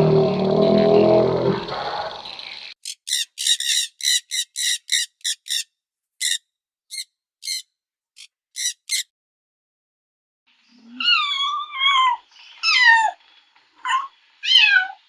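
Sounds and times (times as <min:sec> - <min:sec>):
bird chirping: 0:02.8 - 0:07.6, 0:08.2 - 0:09.1.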